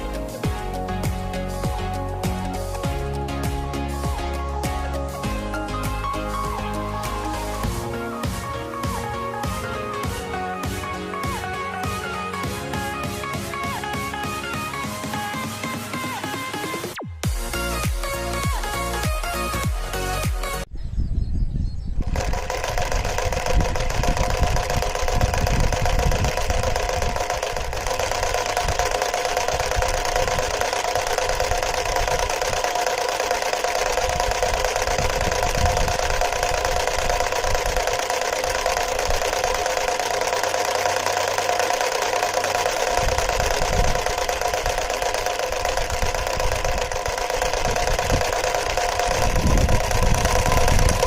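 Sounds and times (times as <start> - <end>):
engine pistons rattling: 0.0 - 15.4, 22.0 - 51.0
electric motor whine: 22.0 - 51.0.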